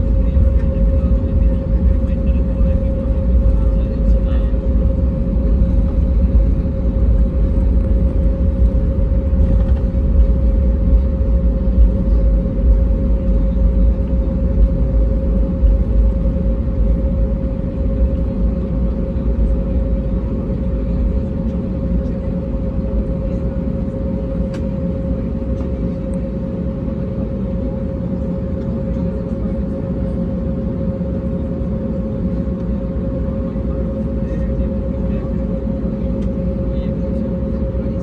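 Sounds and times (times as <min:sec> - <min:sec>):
airplane cabin rumble: 0:00.0 - 0:38.0
constant droning tone: 0:00.0 - 0:38.0.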